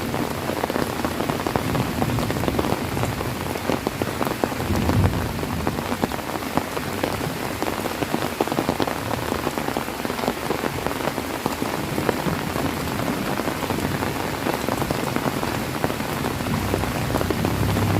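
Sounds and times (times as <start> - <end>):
heavy rain: 0.0 - 17.9
raindrops striking surface: 0.0 - 17.9.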